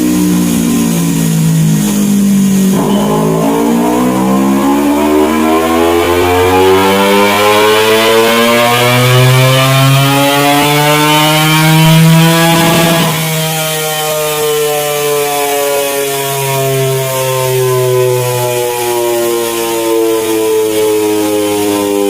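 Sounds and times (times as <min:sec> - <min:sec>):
rough exhaust burst: 0:00.0 - 0:14.4
motorcycle engine revving: 0:00.0 - 0:22.0.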